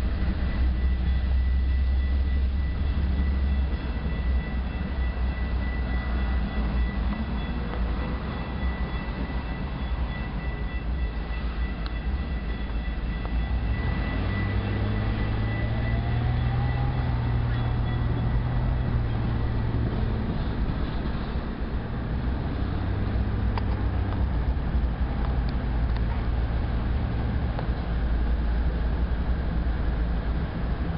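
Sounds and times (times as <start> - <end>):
diesel locomotive engine drone: 0.0 - 30.9
rumble of rolling freight cars: 0.0 - 30.9
high-pitched wheel squeal: 0.4 - 21.6.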